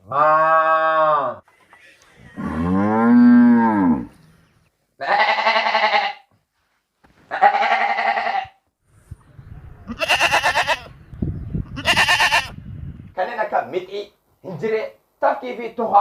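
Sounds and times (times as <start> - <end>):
cow mooing: 2.3 - 4.2
goat bleating: 5.0 - 6.3, 7.3 - 8.6, 9.9 - 10.9, 11.7 - 12.6.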